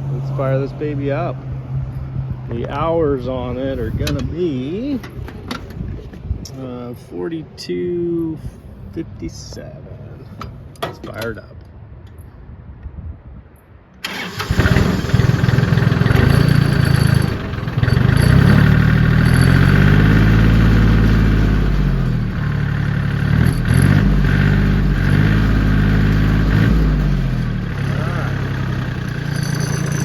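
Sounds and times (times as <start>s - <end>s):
tractor diesel engine starting: 14.0s - 30.0s.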